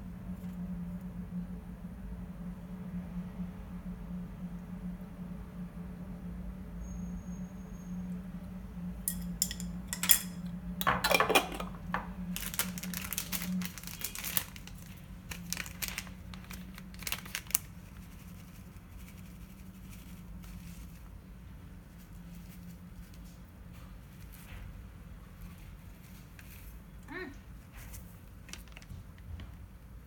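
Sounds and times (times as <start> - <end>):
low steady hum: 0.0 - 30.0
sharp clicks and light clinks: 9.1 - 10.5
packaging crinkling: 11.8 - 21.0, 28.3 - 29.1.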